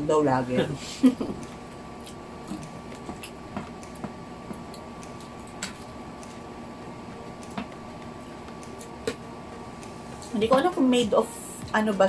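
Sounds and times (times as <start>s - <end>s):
faint steady hum: 0.0s - 12.0s
person chewing food: 1.4s - 6.4s.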